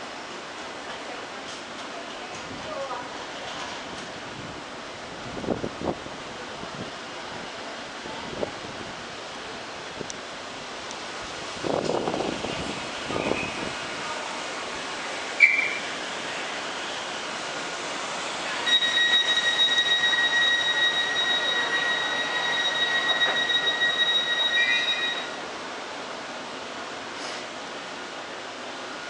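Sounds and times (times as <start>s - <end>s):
passing train rumble: 0.0s - 29.0s
short sharp squeak: 15.4s - 15.9s
train wheels squealing: 15.4s - 15.9s, 18.6s - 25.4s.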